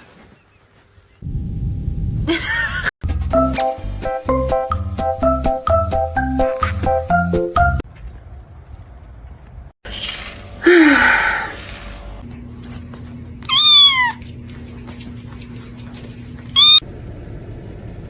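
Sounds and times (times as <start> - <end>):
cat meowing: 13.4 - 14.3, 16.6 - 16.8.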